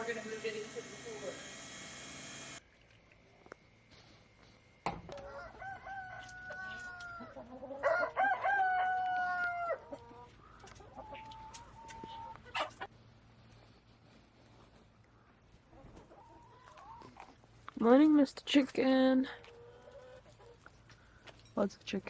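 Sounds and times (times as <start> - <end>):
rooster crowing: 5.1 - 9.9.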